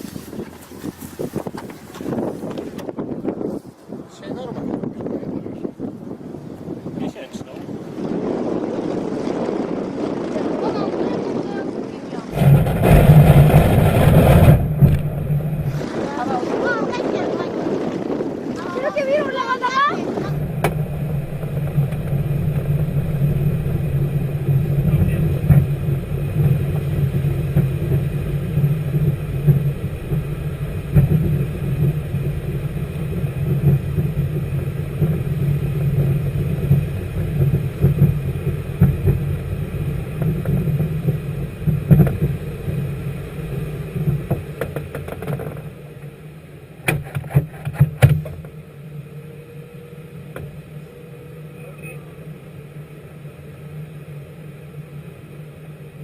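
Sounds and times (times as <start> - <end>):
vehicle engine drone: 0.0 - 56.0
sharp knocks: 20.4 - 42.9.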